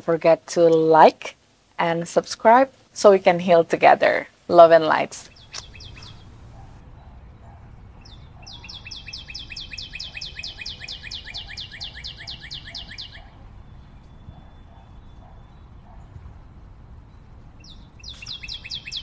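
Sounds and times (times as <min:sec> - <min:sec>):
low steady background rumble: 0:00.0 - 0:11.2
bird singing a rapid trill: 0:05.3 - 0:06.6, 0:08.0 - 0:15.7, 0:17.6 - 0:19.0.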